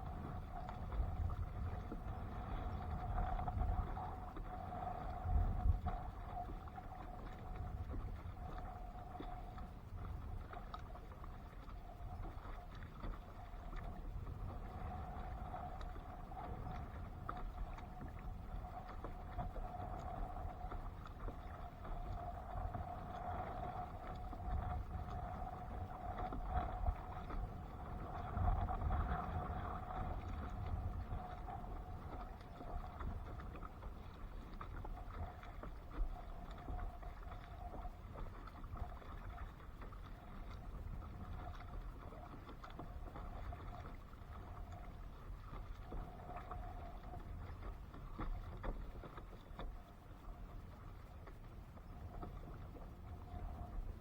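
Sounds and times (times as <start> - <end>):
faint steady hum: 0.0 - 54.0
water and wind rumble: 0.0 - 54.0.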